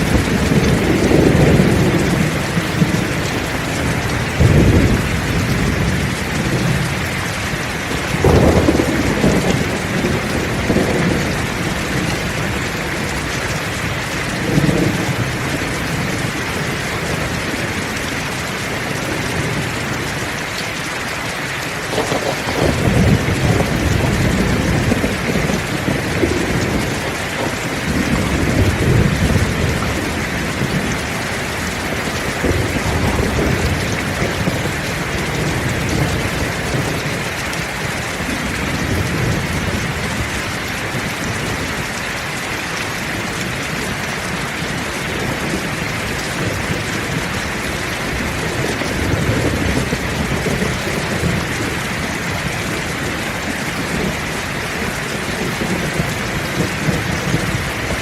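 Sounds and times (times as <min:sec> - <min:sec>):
heavy rain pouring: 0:00.0 - 0:58.0
distant thunder rolls: 0:07.9 - 0:13.4, 0:21.8 - 0:31.1, 0:31.7 - 0:40.3.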